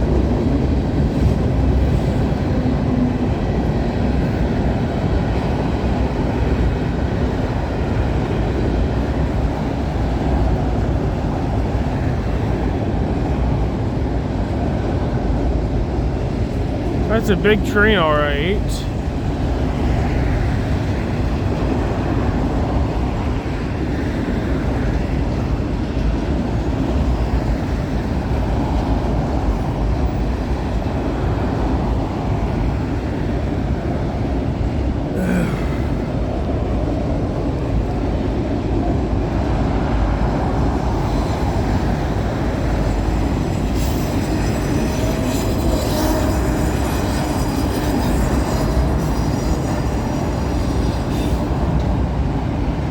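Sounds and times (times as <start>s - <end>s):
train wheels rumbling on rail: 18.9s - 35.1s, 36.0s - 52.9s.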